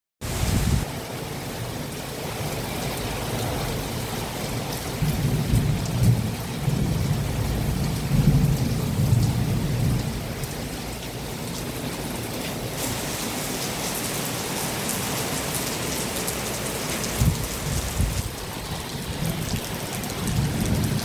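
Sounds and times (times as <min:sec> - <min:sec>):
heavy rain falling: 0:00.2 - 0:21.0
low rumbling thunder: 0:04.9 - 0:11.0, 0:17.1 - 0:21.0.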